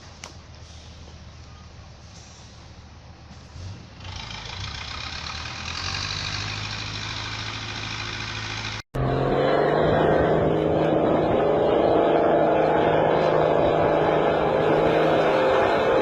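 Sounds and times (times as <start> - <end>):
vehicle engine running: 0.0 - 16.0
louder different engine: 3.6 - 16.0.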